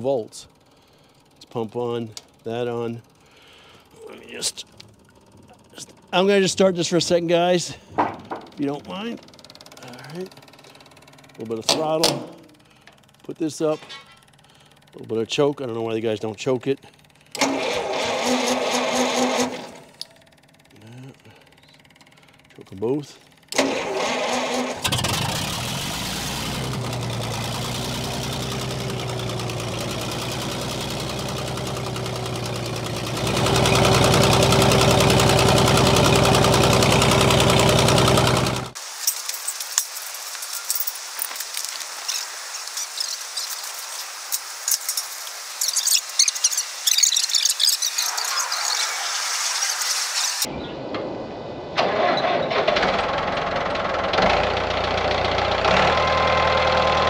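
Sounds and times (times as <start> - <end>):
tractor engine running: 0.0 - 38.9, 51.8 - 57.0
thin high-pitched hiss with crackling: 38.8 - 50.5.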